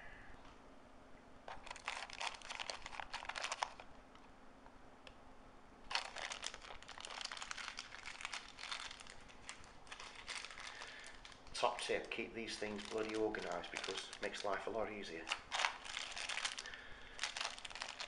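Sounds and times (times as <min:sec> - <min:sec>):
small parts rattling in box: 0:01.5 - 0:03.8, 0:05.9 - 0:11.3, 0:15.2 - 0:18.0.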